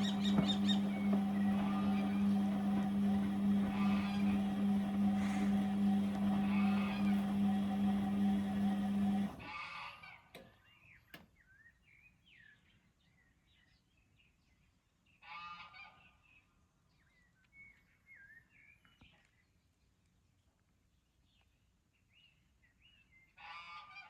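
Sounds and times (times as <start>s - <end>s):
bird honking call: 0.0s - 4.4s
birds chirping: 0.0s - 8.3s
machine humming: 0.0s - 9.5s.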